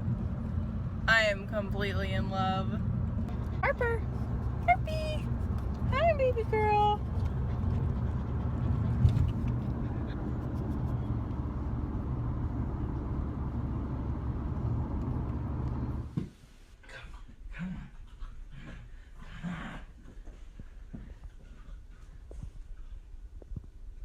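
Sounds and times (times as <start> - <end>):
car cabin road noise: 0.0 - 16.4.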